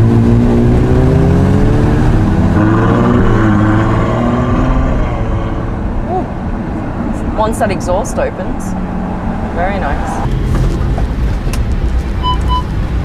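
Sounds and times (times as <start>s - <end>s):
car engine running: 9.5s - 13.0s.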